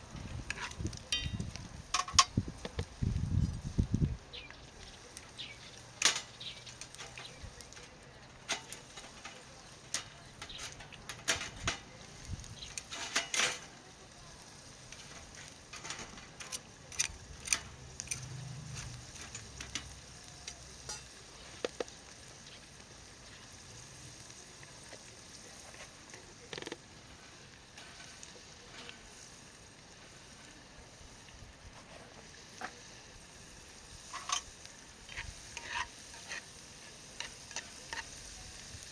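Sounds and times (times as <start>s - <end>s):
food sizzling in a pan: 0.0s - 38.9s
utensil tapping a pan: 1.1s - 2.3s.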